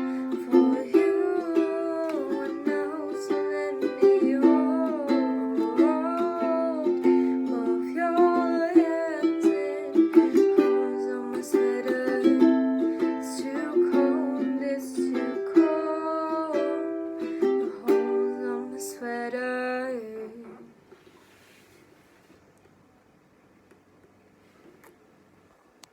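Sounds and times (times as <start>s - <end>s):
ukulele strumming and picking: 0.0s - 19.3s
person singing wordless melody: 0.0s - 20.8s.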